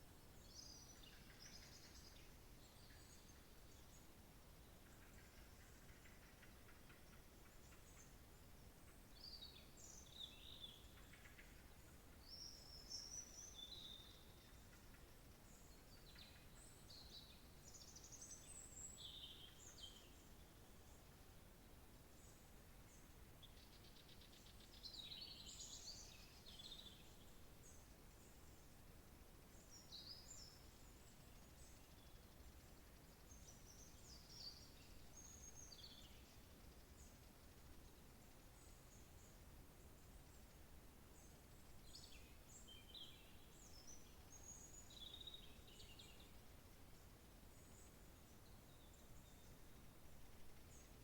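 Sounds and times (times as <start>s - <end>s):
faint steady hiss: 0.0s - 51.0s
songbirds singing: 0.0s - 51.0s.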